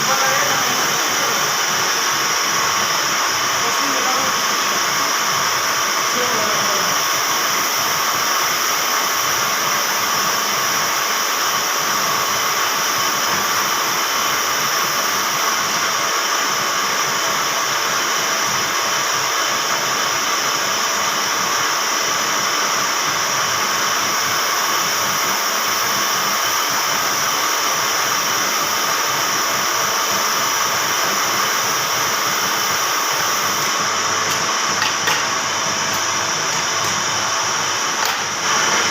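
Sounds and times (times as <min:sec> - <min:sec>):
workshop machine whirring: 0:00.0 - 0:38.9.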